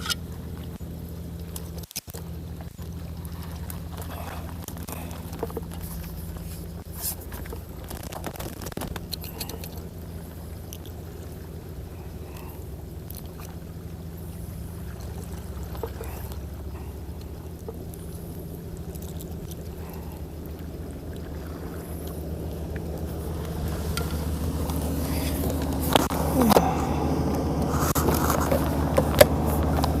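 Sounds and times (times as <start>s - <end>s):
sharp clicks and scrapes: 0.0s - 0.8s, 1.4s - 2.3s, 4.6s - 9.8s, 27.6s - 30.0s
low engine hum: 0.0s - 30.0s
water sloshing: 0.0s - 30.0s.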